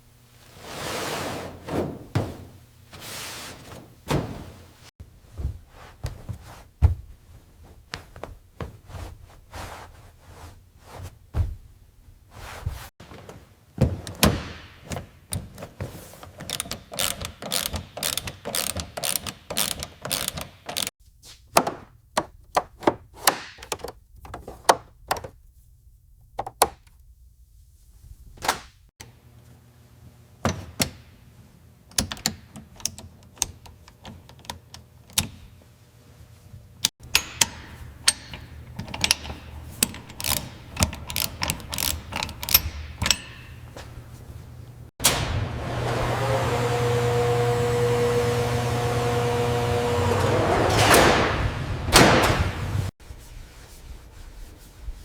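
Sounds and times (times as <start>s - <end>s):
knocks and thunks: 1.7s - 2.6s, 3.7s - 4.7s, 5.3s - 7.2s, 11.3s - 11.8s.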